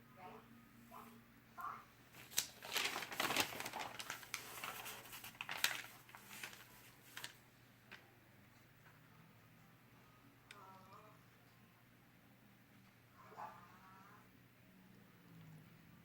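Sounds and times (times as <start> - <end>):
paper rustling: 2.1 - 7.4
paper handling clicks: 2.2 - 8.0.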